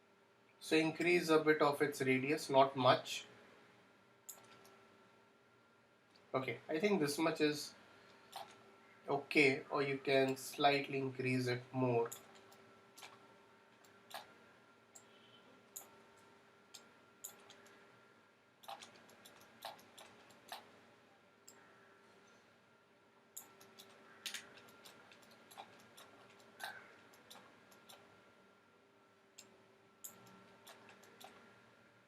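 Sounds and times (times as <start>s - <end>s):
faint steady hum: 0.0s - 32.0s
computer mouse clicks: 4.3s - 4.8s, 8.1s - 8.6s, 12.1s - 13.2s, 13.8s - 14.3s, 14.9s - 17.8s, 18.6s - 20.7s, 23.4s - 28.1s, 29.4s - 31.5s.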